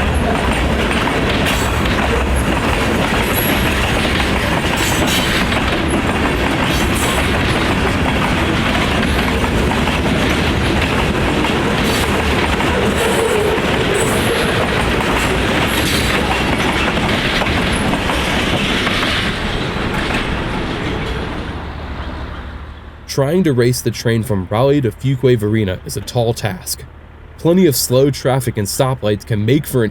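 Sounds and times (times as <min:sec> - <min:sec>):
train wheels clickety-clack: 0:00.0 - 0:22.5.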